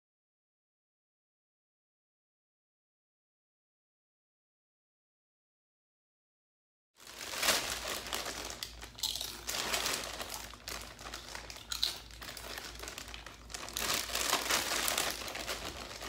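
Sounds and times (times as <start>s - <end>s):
chip bag crinkling: 7.0s - 16.0s.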